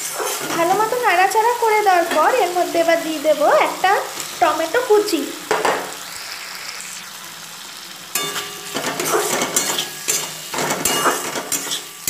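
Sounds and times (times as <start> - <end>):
tomato sizzling in oil: 0.0 - 12.0
metal spatula scraping pan: 8.1 - 12.0.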